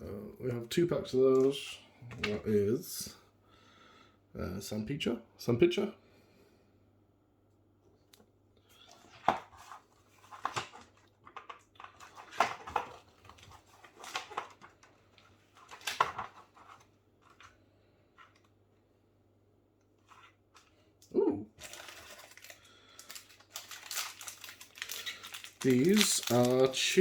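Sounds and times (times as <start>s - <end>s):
snack packaging crinkling: 8.8s - 17.5s, 21.6s - 27.0s.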